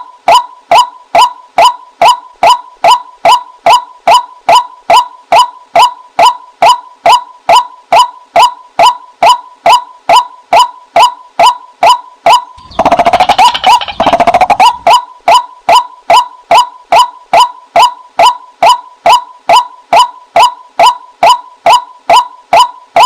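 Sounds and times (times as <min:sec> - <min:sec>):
harsh rattling bird call: 0:12.6 - 0:14.9
waterhen calling kwak: 0:12.6 - 0:15.0.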